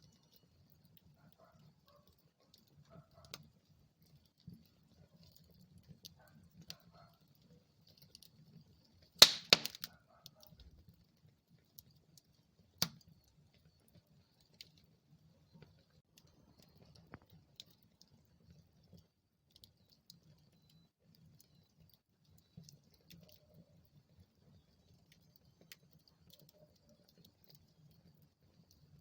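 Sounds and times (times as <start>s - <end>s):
wood fire crackling: 0.0s - 29.0s
loud pops from fire: 9.2s - 10.0s.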